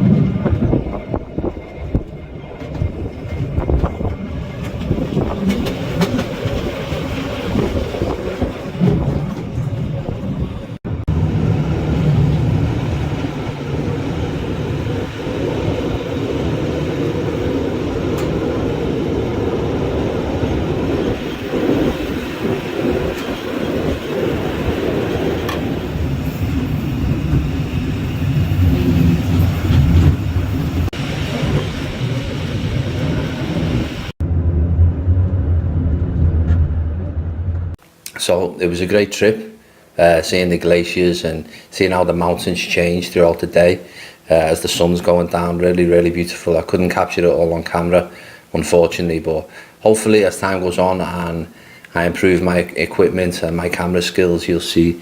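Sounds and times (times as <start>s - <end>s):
train running on track: 0.0s - 37.8s.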